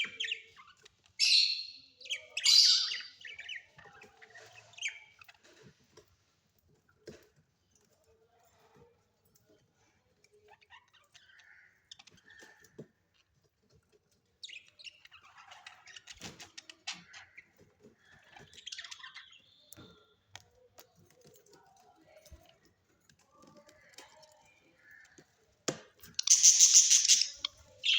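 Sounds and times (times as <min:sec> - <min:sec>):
birds chirping: 0:00.0 - 0:05.4, 0:26.0 - 0:27.9.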